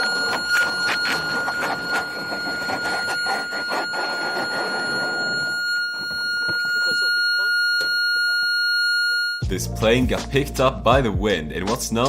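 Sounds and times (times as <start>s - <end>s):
steady high warning horn: 0.0s - 8.4s.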